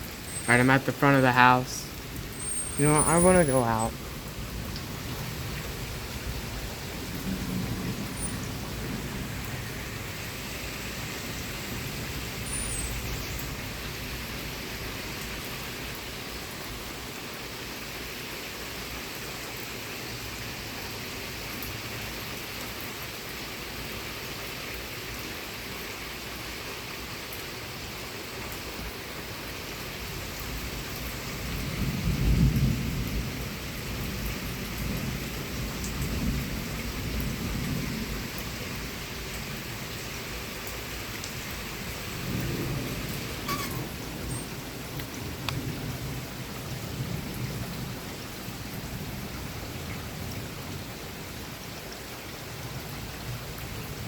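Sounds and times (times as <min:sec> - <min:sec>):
heavy rain falling: 0:00.0 - 0:54.0
thunder rumbling: 0:01.3 - 0:10.1.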